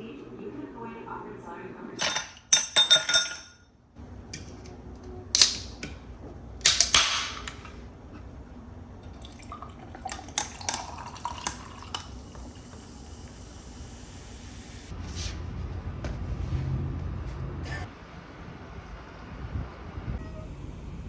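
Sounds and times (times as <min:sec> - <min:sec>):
dishes and utensils clinking: 0:02.0 - 0:03.6.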